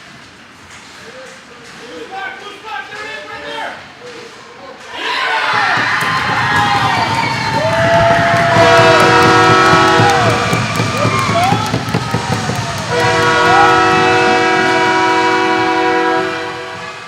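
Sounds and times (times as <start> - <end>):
crowd cheering: 4.7 - 17.0
goal horn blasts: 8.5 - 11.4, 12.9 - 17.0.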